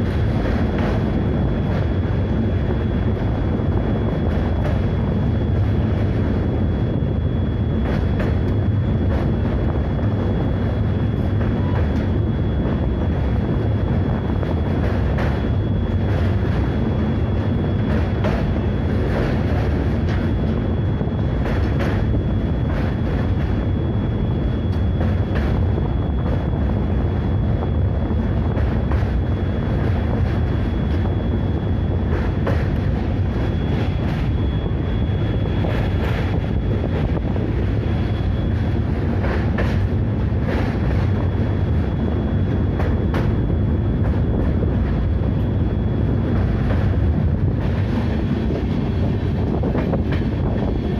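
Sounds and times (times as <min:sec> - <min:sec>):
high steady whine: 0:00.0 - 0:50.9
train rumbling on rails: 0:00.0 - 0:50.9.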